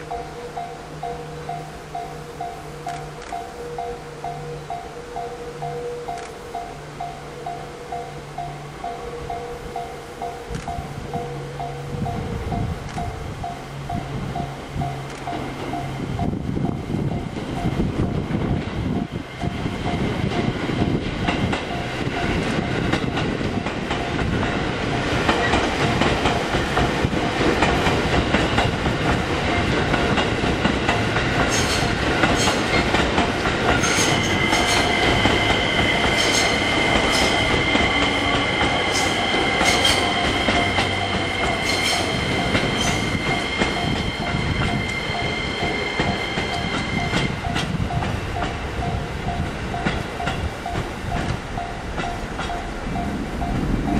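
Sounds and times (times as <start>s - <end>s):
train wheels clicking over joints: 12.0s - 53.9s
high wheel squeal: 33.8s - 47.5s.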